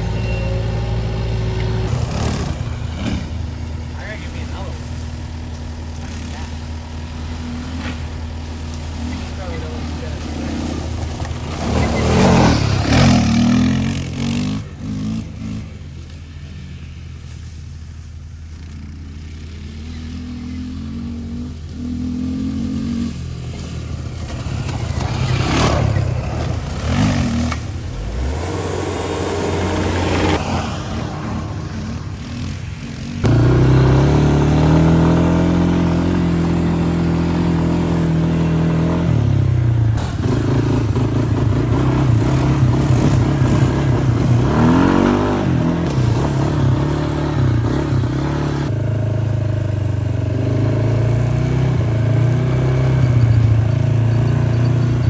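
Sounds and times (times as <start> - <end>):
atv engines revving: 0.0 - 55.0.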